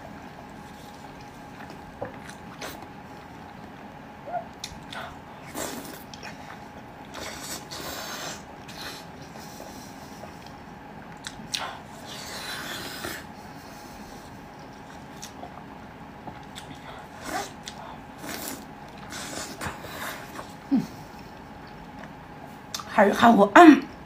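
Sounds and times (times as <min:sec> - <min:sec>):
wet chewing and mouth clicks: 0:00.3 - 0:07.9, 0:08.6 - 0:12.2, 0:14.2 - 0:20.6.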